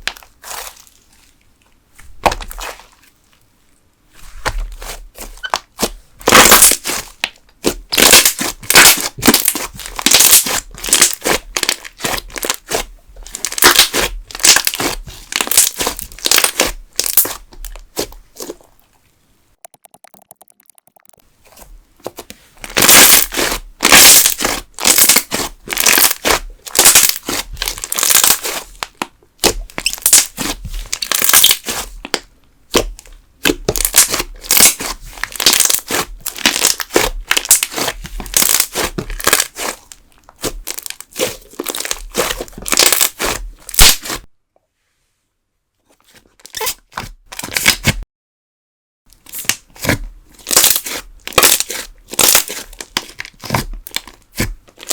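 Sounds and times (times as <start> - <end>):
slime crackling and popping: 5.4 - 18.1, 19.6 - 21.2, 22.7 - 44.2, 50.4 - 54.9.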